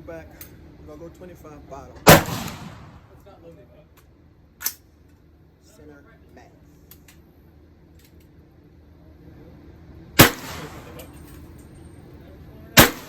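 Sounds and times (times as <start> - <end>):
handgun shot echoing: 2.1 - 3.1, 10.2 - 11.0, 12.8 - 13.0.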